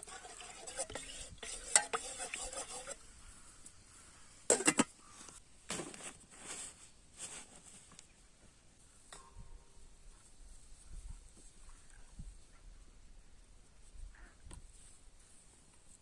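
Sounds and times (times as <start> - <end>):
swishing scrapes: 0.0 - 3.0
utensils clinking and scraping: 0.0 - 3.0.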